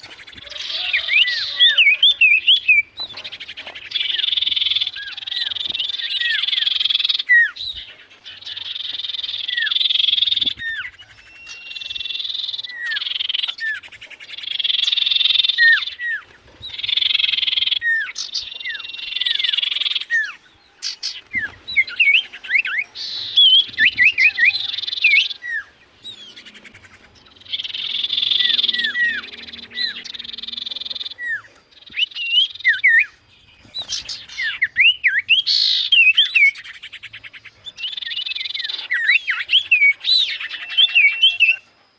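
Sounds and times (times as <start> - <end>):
bird trilling: 0.0 - 41.7
bird whistles: 8.4 - 26.5, 37.6 - 41.6.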